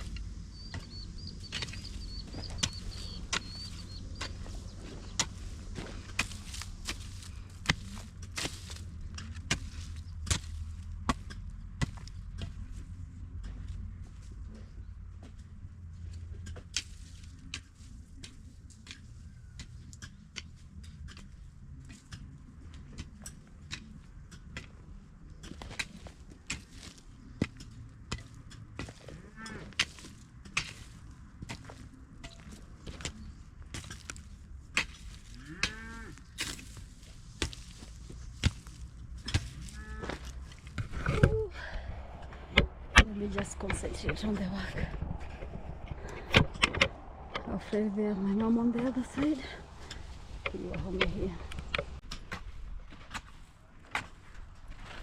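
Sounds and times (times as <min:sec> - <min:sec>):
hand hoe chopping into soil: 0:00.0 - 0:12.6, 0:25.4 - 0:41.4
cow mooing: 0:35.4 - 0:36.2, 0:39.7 - 0:40.2.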